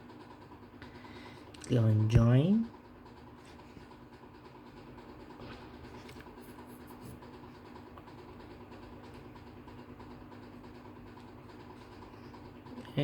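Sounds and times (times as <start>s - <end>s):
faint background hum: 0.0s - 13.0s.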